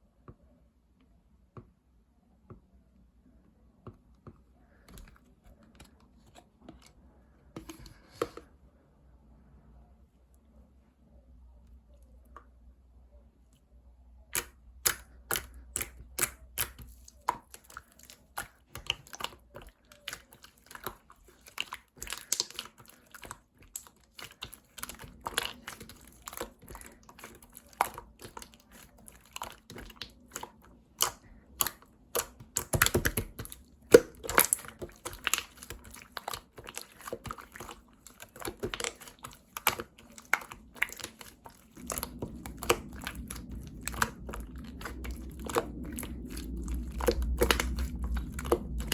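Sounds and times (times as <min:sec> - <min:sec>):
slime clicking and popping: 0:14.3 - 0:48.9.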